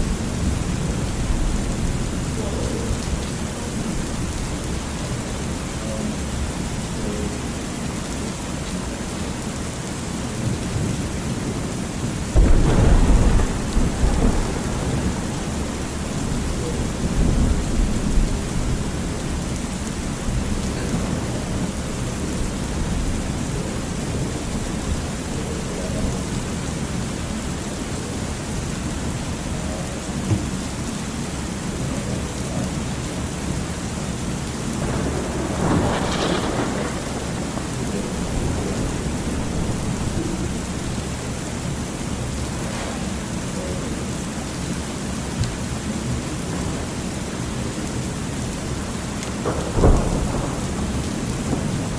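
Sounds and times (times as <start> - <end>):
thunder rumbling: 0.0 - 7.4, 10.4 - 27.9, 34.6 - 43.2, 49.4 - 51.9
steady rain: 0.0 - 51.9.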